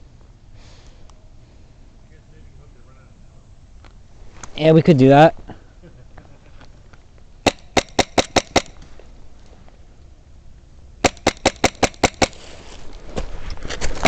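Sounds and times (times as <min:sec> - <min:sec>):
airsoft guns firing: 0:07.4 - 0:08.8, 0:11.0 - 0:12.4.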